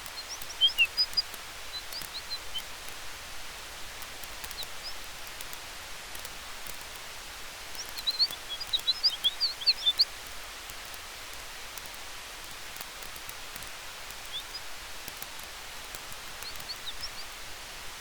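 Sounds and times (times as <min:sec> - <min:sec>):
bird twittering: 0:00.0 - 0:02.7, 0:07.8 - 0:10.1, 0:14.2 - 0:14.7, 0:16.4 - 0:17.3
burning wood crackling: 0:00.0 - 0:18.0
steady wind hiss: 0:00.0 - 0:18.0.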